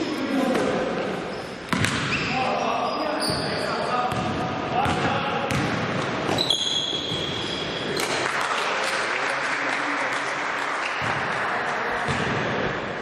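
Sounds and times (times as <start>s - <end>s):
spectators applauding: 8.1s - 11.8s.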